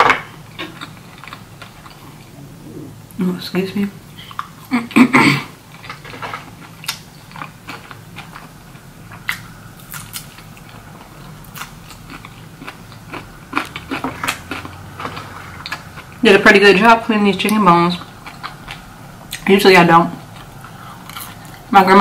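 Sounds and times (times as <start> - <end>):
chewing and biting: 9.2 - 16.2.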